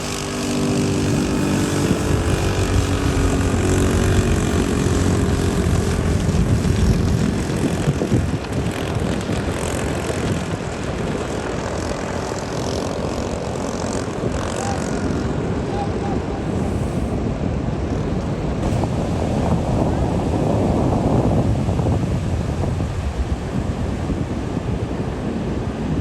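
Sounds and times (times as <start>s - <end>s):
vehicle engine droning: 0.0s - 17.2s
road and wind noise: 0.0s - 26.0s.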